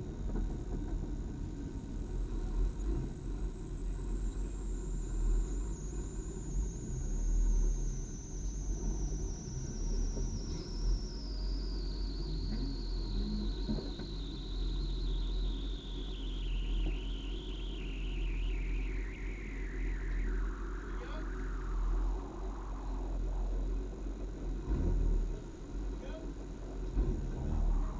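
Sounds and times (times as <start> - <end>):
high-pitched whine: 0.0 - 27.9
car engine idling: 19.7 - 27.9.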